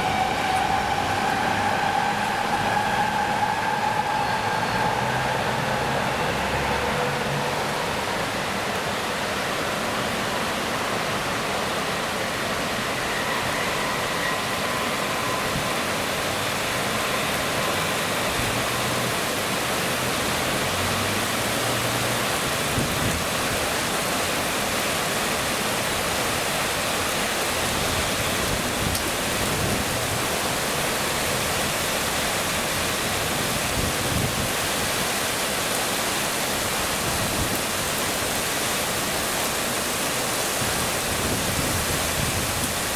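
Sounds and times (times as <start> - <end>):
heavy rain pouring: 0.0 - 42.9
faint high whine: 11.8 - 18.4.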